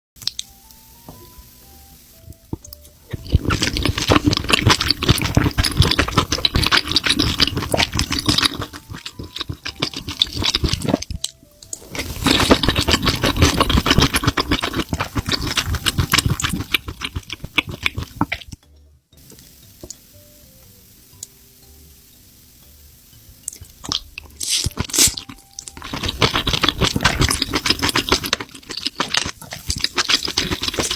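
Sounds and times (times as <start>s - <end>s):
wet sticky crackling of food: 2.2s - 18.6s, 23.4s - 30.9s.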